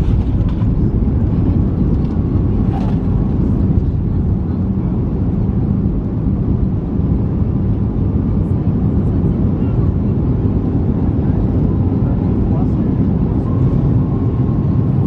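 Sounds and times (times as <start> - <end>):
aircraft cabin rumble: 0.0 - 15.0.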